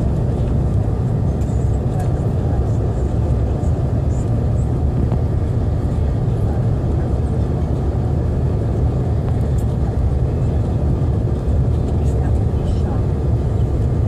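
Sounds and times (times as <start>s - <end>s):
jet airliner cabin rumble: 0.0s - 14.0s.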